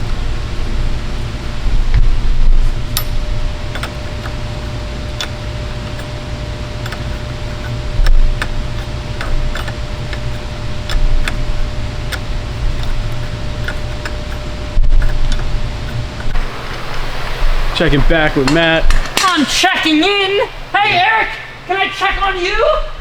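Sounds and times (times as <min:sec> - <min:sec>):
dull low thumps: 0:00.0 - 0:16.4
steady low hum: 0:00.0 - 0:23.0.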